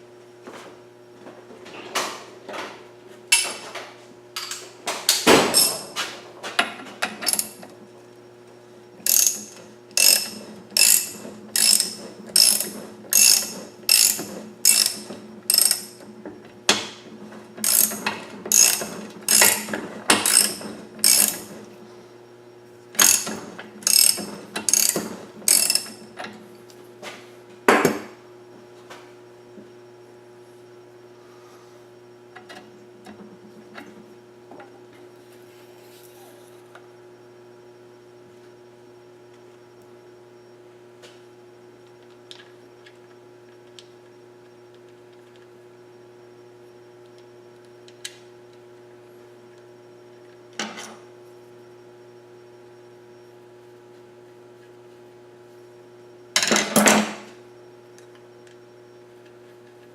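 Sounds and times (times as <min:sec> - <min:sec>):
ratchet wrench clicking: 0:09.1 - 0:16.0, 0:17.6 - 0:21.5, 0:23.0 - 0:26.0.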